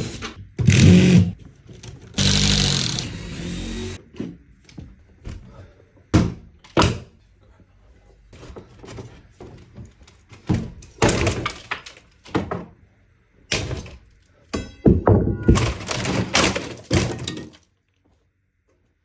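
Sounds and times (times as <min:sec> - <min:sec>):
clattering impacts: 0:13.6 - 0:17.6
heavy demolition thuds: 0:14.6 - 0:17.4.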